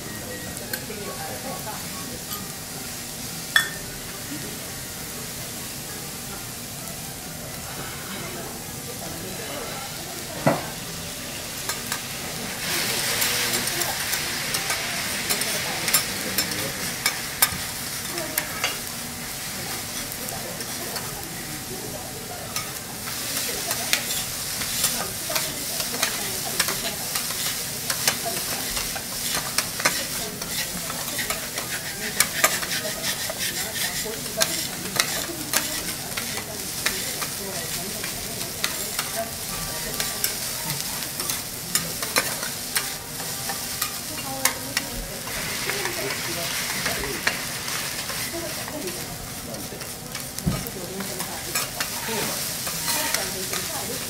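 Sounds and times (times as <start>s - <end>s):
rice sizzling on a griddle: 0.0s - 54.0s
metal spatulas clicking on griddle: 13.6s - 18.9s, 22.6s - 44.8s, 51.2s - 52.0s, 52.6s - 54.0s.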